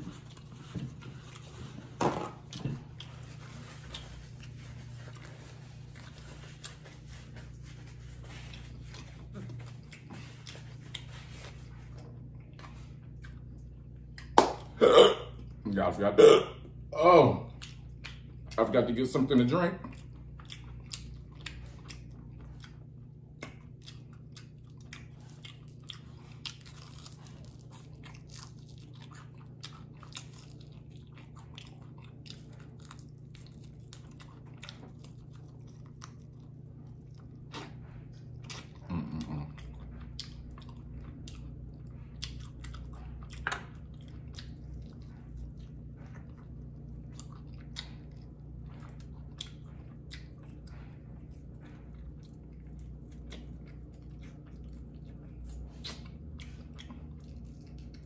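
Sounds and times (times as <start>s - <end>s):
chewing crunchy chicken wings: 0.0s - 58.0s
person humming: 38.8s - 39.6s.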